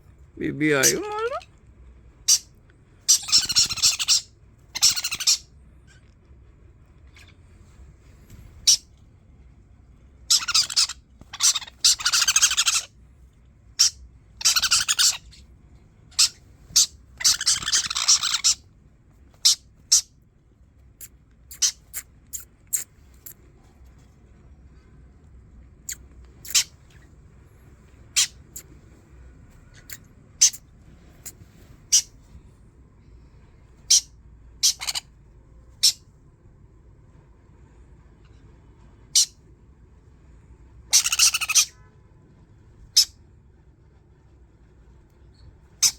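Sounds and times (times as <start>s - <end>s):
parrot screeching: 0.8s - 1.5s, 2.3s - 2.5s, 3.1s - 5.5s, 8.6s - 8.8s, 10.3s - 12.9s, 13.8s - 15.4s, 16.1s - 18.6s, 19.4s - 20.1s, 21.5s - 22.0s, 26.4s - 26.7s, 29.8s - 30.6s, 31.9s - 32.1s, 33.9s - 35.1s, 39.1s - 39.4s, 40.9s - 41.8s
parrot squawks and chirps: 0.8s - 1.5s, 2.2s - 6.1s, 8.5s - 8.9s, 10.2s - 13.0s, 13.8s - 15.5s, 16.1s - 18.7s, 19.3s - 20.2s, 21.0s - 23.4s, 25.8s - 27.1s, 28.0s - 28.8s, 29.6s - 32.4s, 33.8s - 36.1s, 39.0s - 39.4s, 40.8s - 41.9s, 42.9s - 43.2s, 45.3s - 45.9s.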